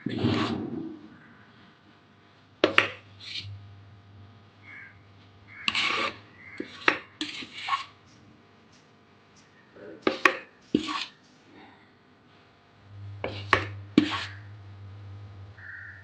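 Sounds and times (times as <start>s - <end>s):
knocks and scrapes of vessels: 0.0s - 1.2s, 2.6s - 3.6s, 5.6s - 8.0s, 10.0s - 11.2s, 13.1s - 14.6s.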